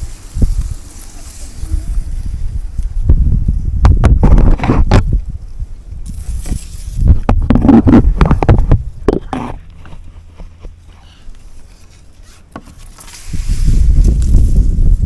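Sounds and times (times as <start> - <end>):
wind buffeting microphone: 0.0 - 10.1, 13.2 - 15.0.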